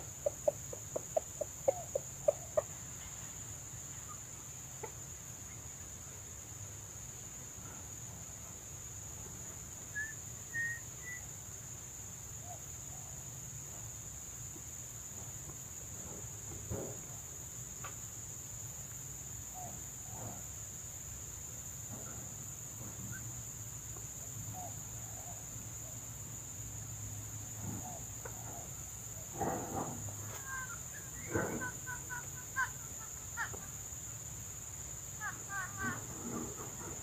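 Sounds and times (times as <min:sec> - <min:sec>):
junglefowl clucking: 0:00.0 - 0:03.2, 0:04.0 - 0:05.2, 0:29.4 - 0:34.0
high insect drone: 0:00.0 - 0:37.0.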